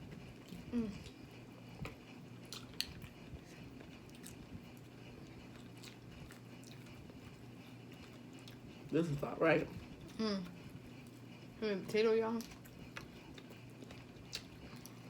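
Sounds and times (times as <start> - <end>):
low steady hum: 0.0 - 15.0
chewing: 0.1 - 11.5, 12.3 - 15.0.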